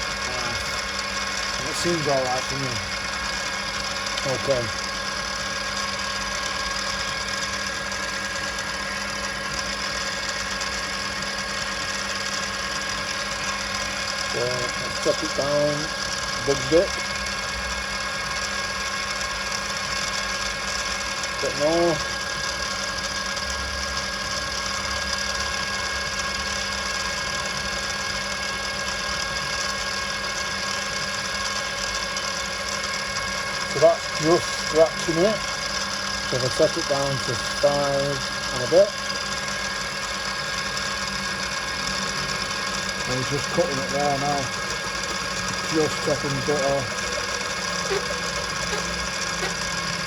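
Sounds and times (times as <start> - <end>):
cutter scratching metal: 0.0 - 3.0, 41.6 - 50.0
milling machine spindle hum and whine: 0.0 - 50.0.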